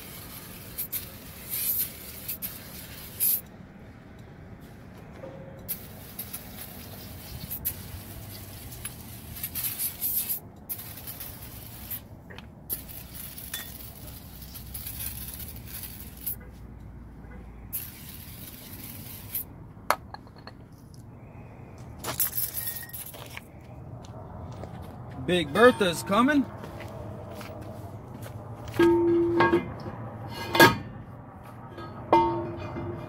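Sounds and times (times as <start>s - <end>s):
spray hissing: 0.0s - 3.4s, 5.7s - 12.1s, 12.7s - 16.4s, 17.7s - 19.5s.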